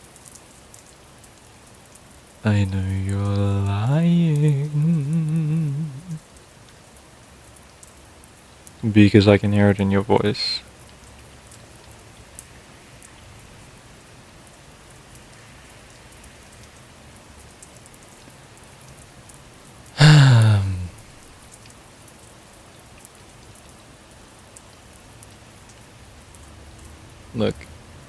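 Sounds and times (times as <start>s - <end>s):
steady rain patter: 0.0s - 28.0s
man's short wordless vocal sound: 2.5s - 6.2s, 20.0s - 21.1s, 27.4s - 27.6s.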